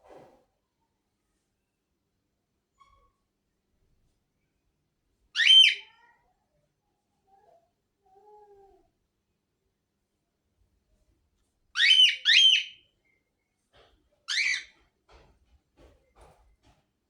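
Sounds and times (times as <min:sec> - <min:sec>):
parrot sharp high calls: 0:05.4 - 0:05.9, 0:11.8 - 0:12.8
parrot whistle: 0:11.8 - 0:12.8.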